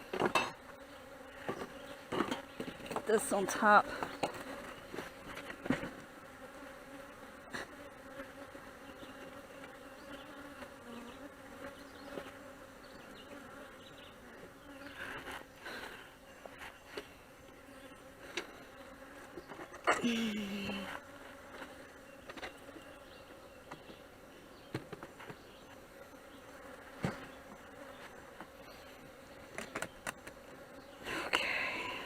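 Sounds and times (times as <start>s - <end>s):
honeybees buzzing: 0.0s - 32.0s
light knocks of hive parts: 1.4s - 3.3s, 24.6s - 25.6s, 27.0s - 28.6s.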